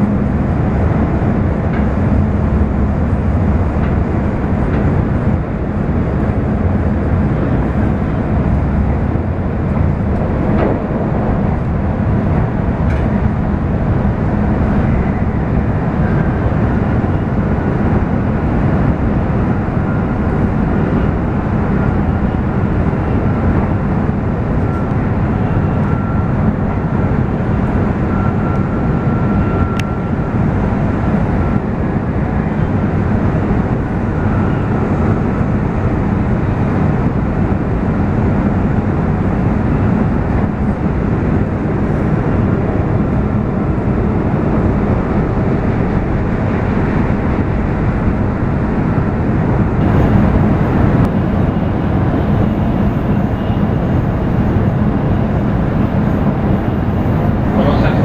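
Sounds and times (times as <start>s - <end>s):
train cabin rumble and rush: 0.0s - 58.0s
faint high whine: 49.7s - 58.0s.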